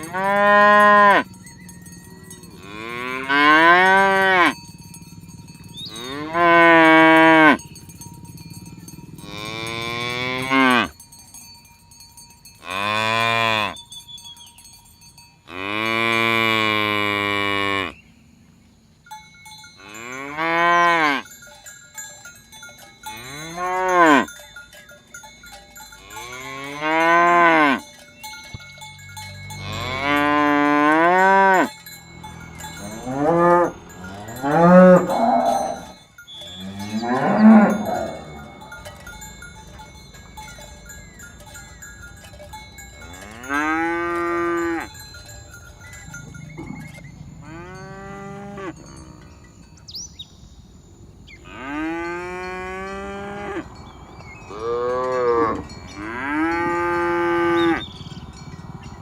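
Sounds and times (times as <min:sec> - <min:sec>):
cattle mooing: 0:02.3 - 0:04.6, 0:05.8 - 0:07.6, 0:09.2 - 0:10.9, 0:29.5 - 0:38.9, 0:43.1 - 0:44.9, 0:46.4 - 0:49.3, 0:54.5 - 0:58.3.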